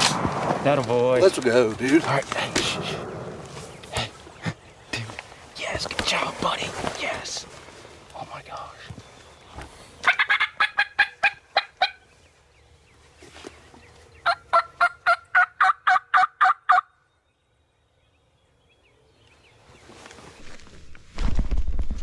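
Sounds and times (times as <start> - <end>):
wild turkey gobbling: 10.0 - 12.0, 14.2 - 17.0.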